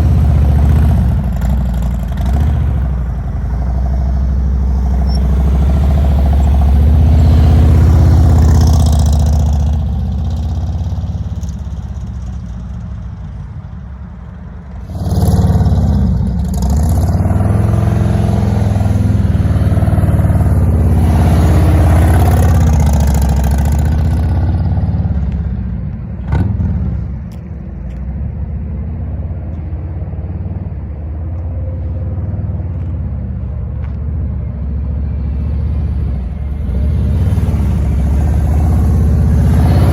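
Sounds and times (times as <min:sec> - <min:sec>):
motorcycle engine revving: 0:00.0 - 0:12.0, 0:14.9 - 0:25.3, 0:36.5 - 0:39.9.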